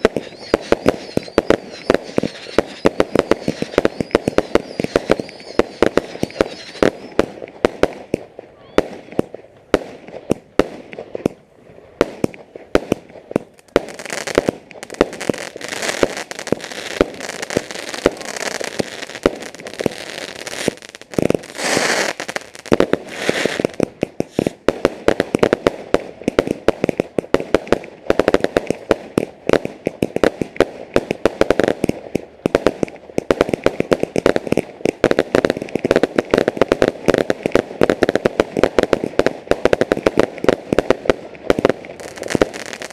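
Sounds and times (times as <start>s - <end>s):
firework hissing spray: 0.0s - 7.1s, 24.2s - 24.6s
fireworks bangs and crackles: 0.0s - 42.9s.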